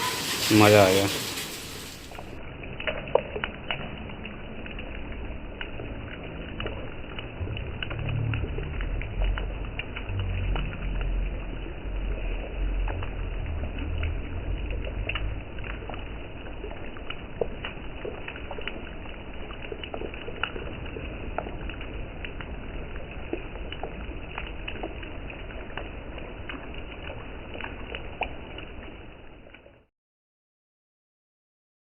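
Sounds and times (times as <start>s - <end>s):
raindrops on microphone: 0.0s - 29.9s
low rumble: 1.1s - 29.6s.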